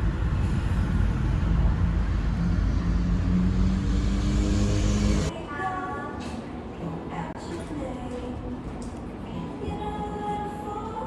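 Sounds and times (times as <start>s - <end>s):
motor vehicle engine rumble: 0.0s - 5.3s
road noise: 0.0s - 5.3s.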